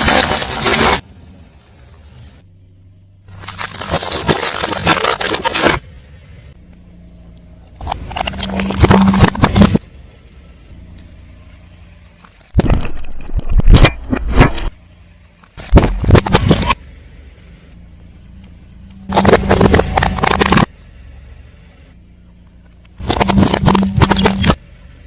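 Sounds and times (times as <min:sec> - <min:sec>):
tyre crushing brittle objects: 0:00.0 - 0:01.0, 0:03.3 - 0:05.8, 0:07.8 - 0:09.8, 0:19.1 - 0:20.7, 0:23.0 - 0:24.6
low hum: 0:00.2 - 0:25.0.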